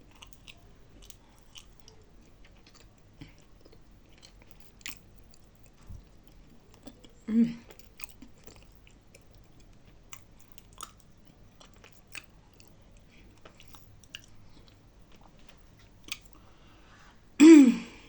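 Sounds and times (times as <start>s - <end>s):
crisp crunches of chewing: 0.0s - 16.5s.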